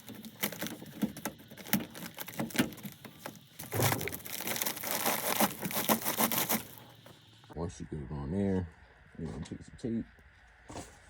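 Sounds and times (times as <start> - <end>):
plastic duct core crinkling: 0.0 - 7.0.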